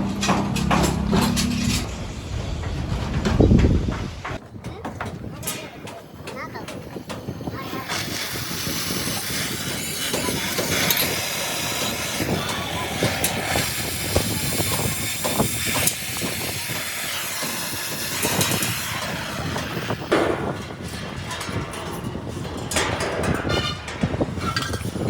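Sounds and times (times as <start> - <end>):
sharp metal knocks: 0.0 - 2.0.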